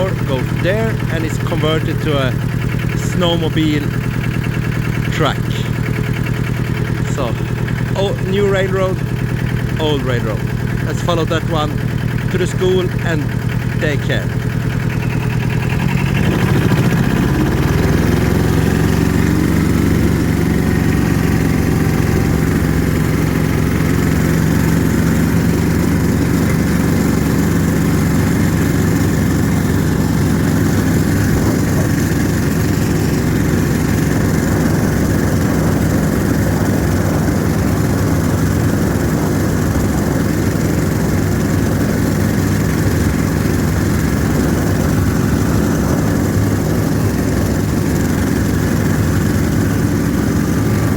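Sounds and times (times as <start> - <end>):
snowmobile engine running: 0.0 - 50.9.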